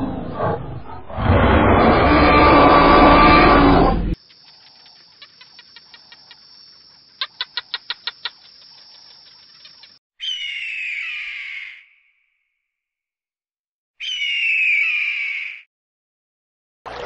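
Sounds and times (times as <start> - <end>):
loud roar: 0.0 - 4.2
bird of prey screeching: 10.2 - 11.9, 14.0 - 15.6.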